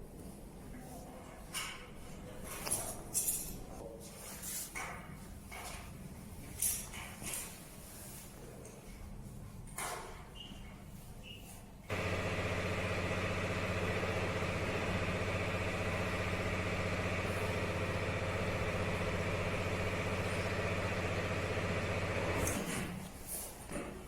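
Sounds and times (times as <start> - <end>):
machine motor humming: 11.9 - 22.8.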